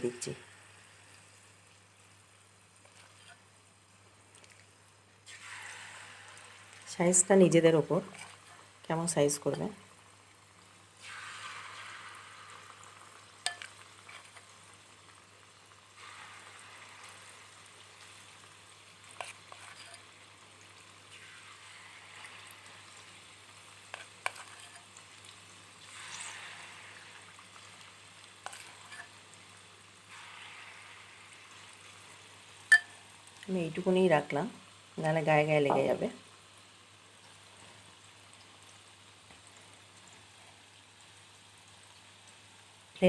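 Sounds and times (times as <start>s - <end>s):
batter sizzling in hot oil: 0.0s - 43.0s
spoon clicking against pan: 13.4s - 13.8s, 32.7s - 33.0s.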